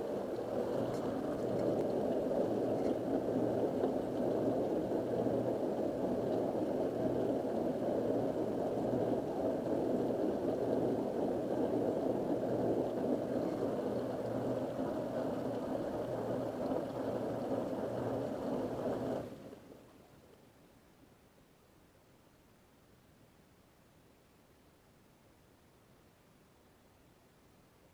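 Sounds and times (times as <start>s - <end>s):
dishwasher pump motor humming: 0.0s - 19.3s
water churning and spraying: 0.0s - 19.4s.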